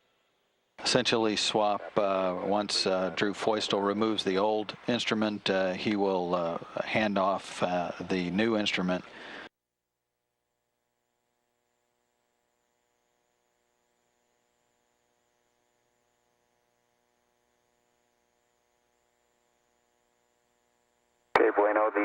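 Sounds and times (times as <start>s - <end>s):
faint electrical hum: 0.0s - 9.5s.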